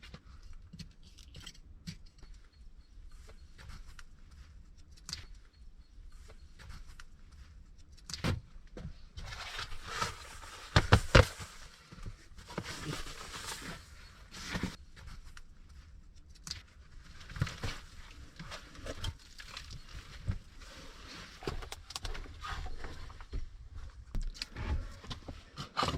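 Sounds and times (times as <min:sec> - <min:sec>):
rustling: 0:09.0 - 0:25.9.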